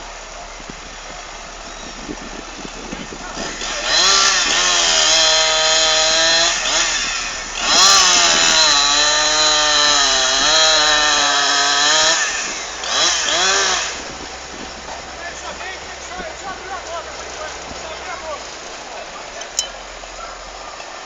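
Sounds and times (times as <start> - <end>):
chainsaw running at high throttle: 3.2 - 14.6.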